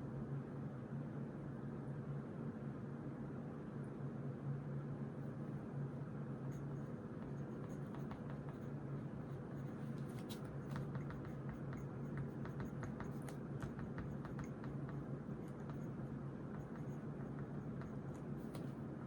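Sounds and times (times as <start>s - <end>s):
low room hum: 0.0s - 19.0s
ballpoint pen scratching on paper: 6.5s - 18.8s.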